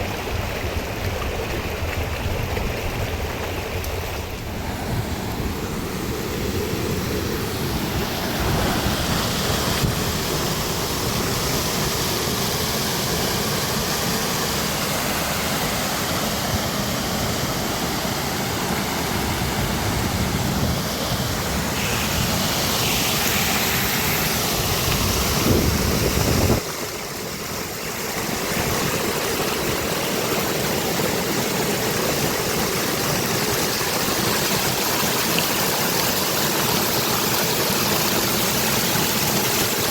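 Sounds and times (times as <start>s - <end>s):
floodwater rushing: 0.0s - 39.9s
heavy rain: 17.5s - 39.9s.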